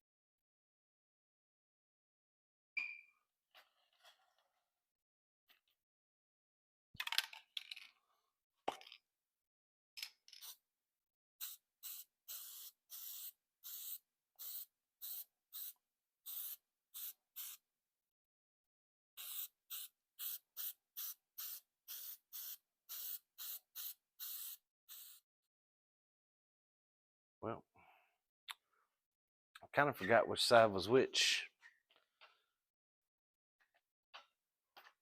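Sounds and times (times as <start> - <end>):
aerosol spray hissing bursts: 11.4 - 17.6, 19.2 - 25.2.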